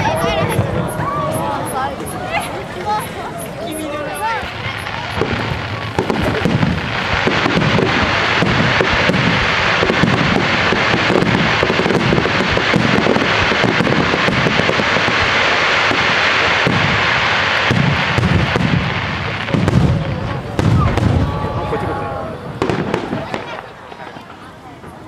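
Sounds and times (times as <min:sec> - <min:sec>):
firework shells bursting: 0:04.4 - 0:20.0.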